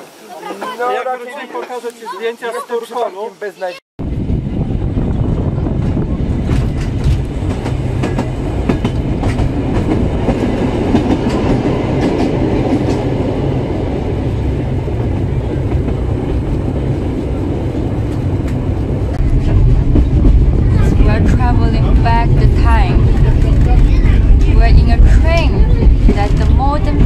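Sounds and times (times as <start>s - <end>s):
train wheels clattering on rails: 5.5s - 27.0s.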